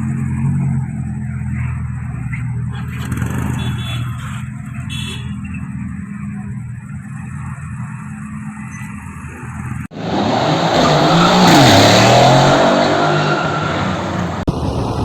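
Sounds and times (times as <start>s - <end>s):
car engine revving hard: 9.9s - 15.0s.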